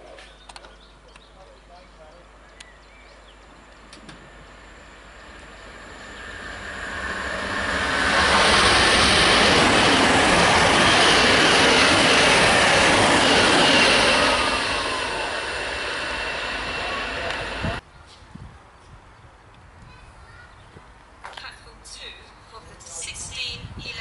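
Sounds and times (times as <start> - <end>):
faint falling whine: 2.6 - 8.8
electric train passing: 2.8 - 17.8.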